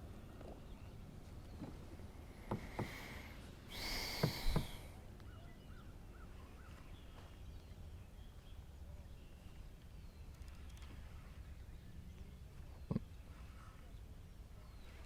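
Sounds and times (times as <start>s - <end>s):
bird calling: 2.5s - 6.8s
brief rushing hiss: 3.7s - 4.9s
low knocks: 4.2s - 4.8s.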